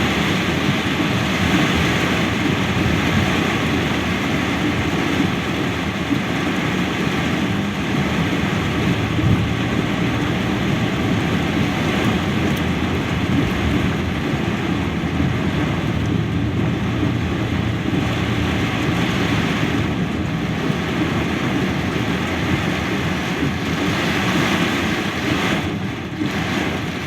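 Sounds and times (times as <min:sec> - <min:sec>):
heavy rain downpour: 0:00.0 - 0:27.0.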